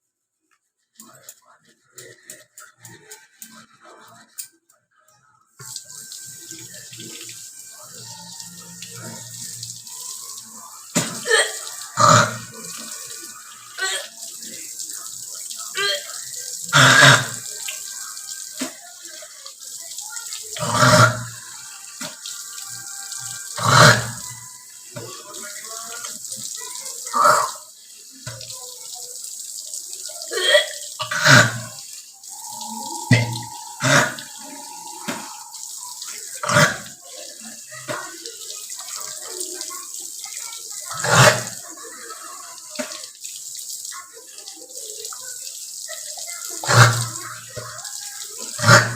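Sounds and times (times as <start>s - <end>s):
tap water running into sink: 0.9s - 4.5s, 5.6s - 48.9s
person clearing throat: 11.0s - 12.5s, 16.7s - 17.4s, 30.3s - 31.8s, 33.1s - 34.4s.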